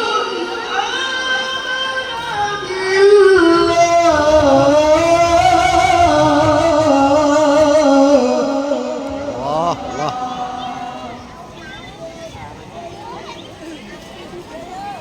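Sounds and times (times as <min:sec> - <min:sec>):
man reciting in melodic sung style: 0:00.0 - 0:11.4.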